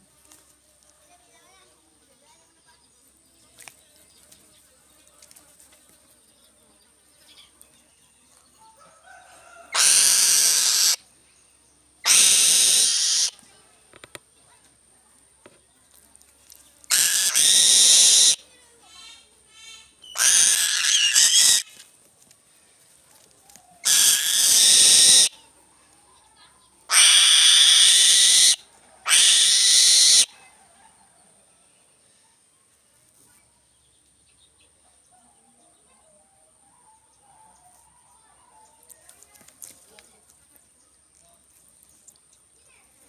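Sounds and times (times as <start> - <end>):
bird of prey screeching: 9.7 - 11.0, 12.0 - 13.4, 16.9 - 18.4, 20.0 - 21.8, 23.8 - 25.4, 26.9 - 30.4.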